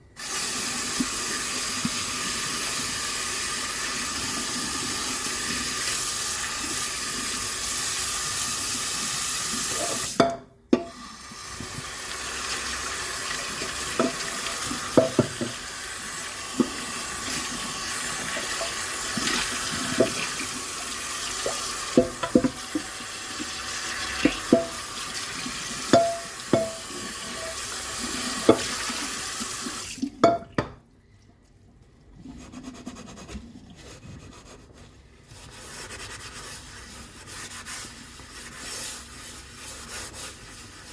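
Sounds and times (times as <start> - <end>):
tap running into a sink: 13.3 - 15.7, 16.5 - 20.6, 21.4 - 29.2.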